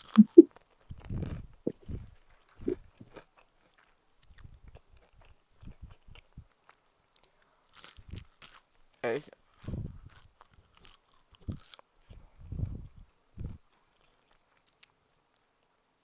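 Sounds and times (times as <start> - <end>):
person vocal sound: 0.0 - 0.5
chewing and biting food: 0.0 - 8.9, 9.5 - 15.4.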